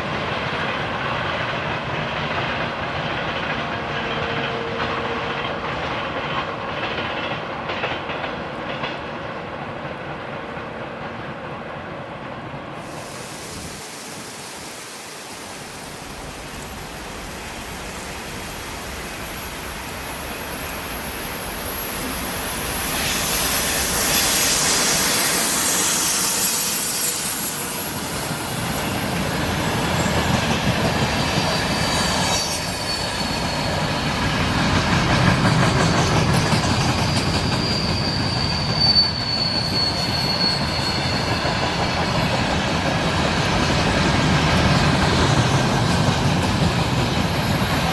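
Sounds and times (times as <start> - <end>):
freight train wheel rumble: 0.0 - 47.9
high wheel squeal: 20.0 - 34.5, 36.4 - 42.8, 47.0 - 47.9.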